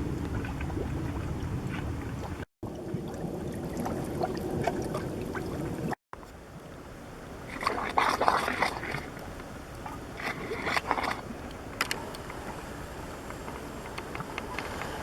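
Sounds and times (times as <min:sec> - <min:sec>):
mud pots bubbling and popping: 0:00.0 - 0:06.0, 0:07.5 - 0:11.7.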